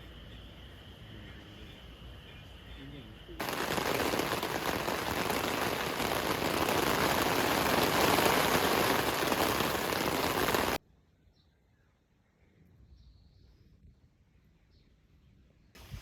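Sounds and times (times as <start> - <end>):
heavy rain pouring: 3.4 - 10.8.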